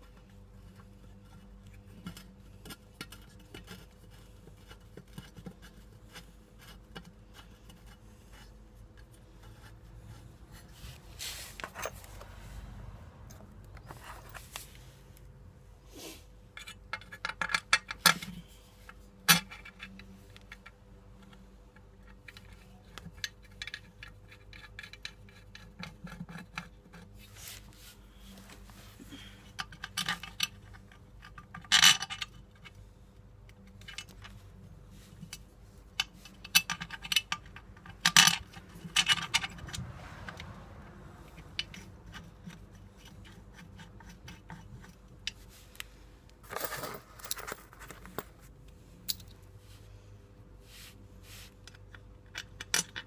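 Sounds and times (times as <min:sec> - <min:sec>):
metal tools clinking and scraping: 0:11.3 - 0:12.3, 0:46.4 - 0:49.4.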